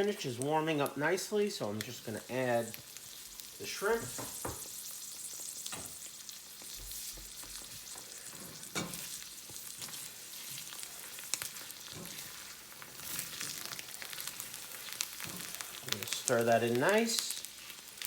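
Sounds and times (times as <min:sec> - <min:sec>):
food sizzling in a frying pan: 0:00.0 - 0:18.0
knocks and scrapes in pan: 0:04.0 - 0:04.7.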